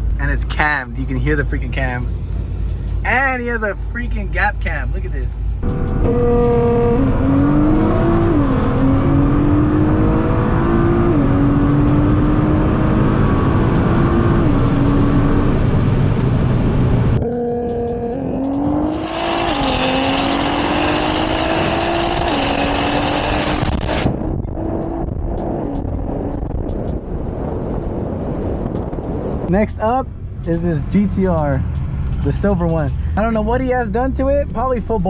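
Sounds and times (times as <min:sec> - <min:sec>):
car engine revving through gears: 0:05.3 - 0:27.0.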